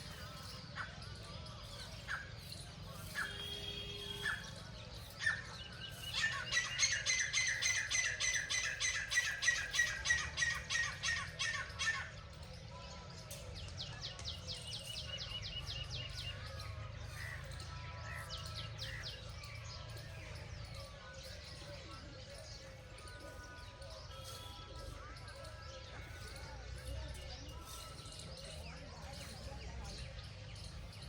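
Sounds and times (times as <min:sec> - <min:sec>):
birds squawking harshly: 0:03.0 - 0:12.2.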